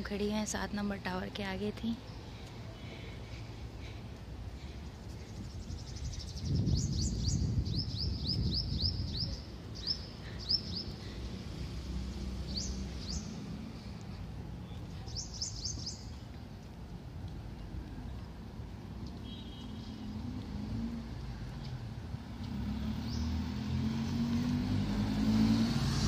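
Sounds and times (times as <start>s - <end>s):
birds chirping: 1.9s - 11.3s, 12.3s - 13.9s, 14.6s - 16.3s.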